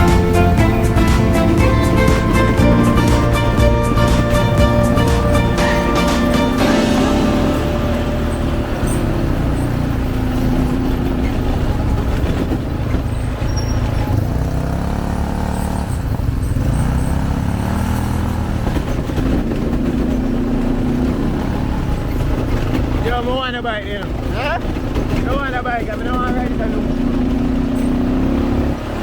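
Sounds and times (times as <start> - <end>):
quad bike engines revving: 8.8 - 29.0.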